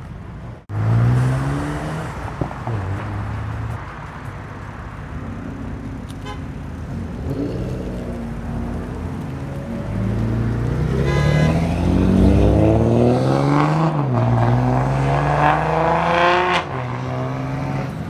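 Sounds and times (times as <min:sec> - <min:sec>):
car engines idling: 0:02.1 - 0:11.9.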